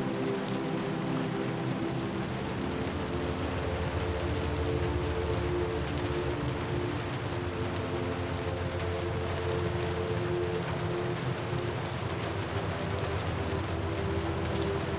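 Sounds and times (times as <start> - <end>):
rain falling: 0.0 - 14.9.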